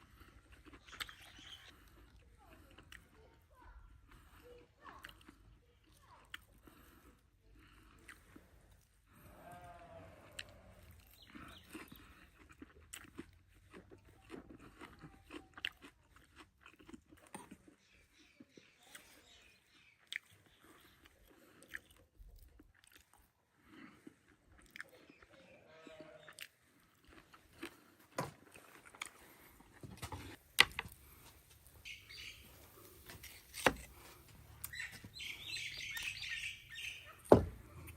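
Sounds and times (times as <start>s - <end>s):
chewing and crunching: 0.0s - 37.9s
birds chirping: 0.7s - 1.8s, 11.0s - 12.2s, 17.7s - 21.0s, 31.0s - 37.9s.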